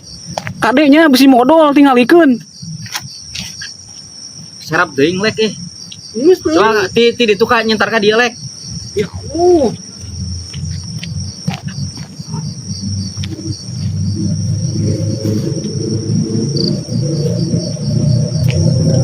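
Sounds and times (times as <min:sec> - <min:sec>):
crickets chirping: 0:00.0 - 0:19.0
low rumbling noise: 0:06.8 - 0:19.0.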